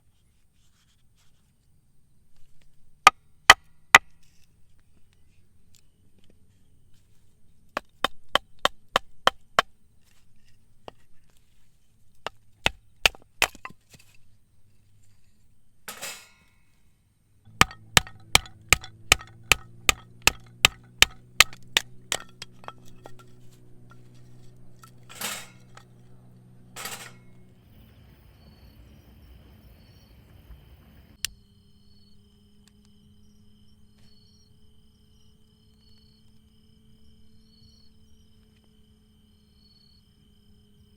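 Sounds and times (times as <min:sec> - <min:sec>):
baton knocking blade through log: 0:12.3 - 0:13.8, 0:17.5 - 0:24.1.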